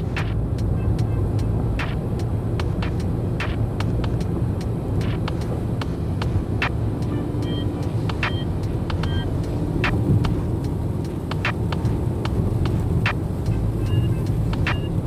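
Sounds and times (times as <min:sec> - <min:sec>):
steady low rumble: 0:00.0 - 0:15.0
campfire pops and crackles: 0:01.7 - 0:07.0.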